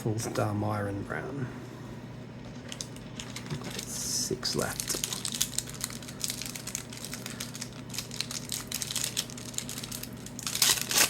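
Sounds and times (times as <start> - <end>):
cards clicking and wrapper crinkling: 4.6 - 11.0.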